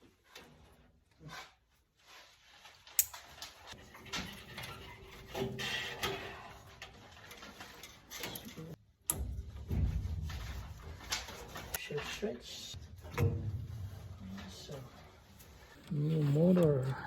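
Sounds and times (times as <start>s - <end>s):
clicks and scraping of parts: 2.5s - 11.9s.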